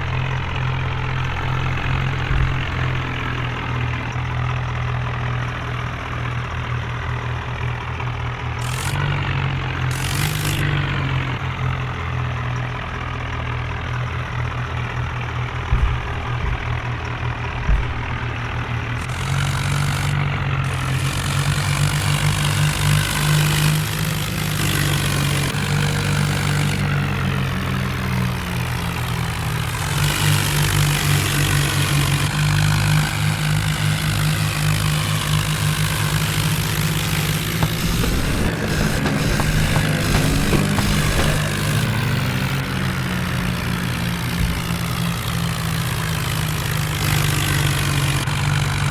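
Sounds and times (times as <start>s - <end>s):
tractor engine running: 0.0s - 48.9s
sharp knocks: 15.7s - 21.2s, 36.3s - 42.3s.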